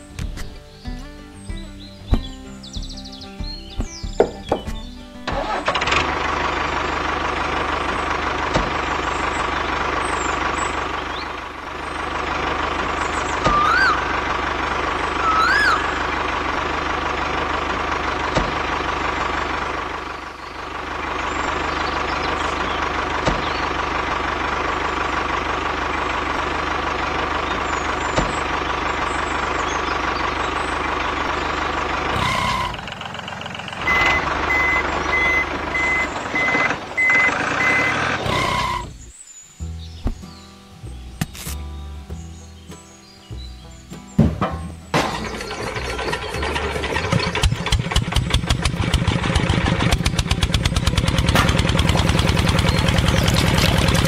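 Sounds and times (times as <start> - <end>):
tractor engine idling: 0.0 - 54.0
rising and falling chirps: 13.0 - 16.6
reversing beep: 33.8 - 38.9.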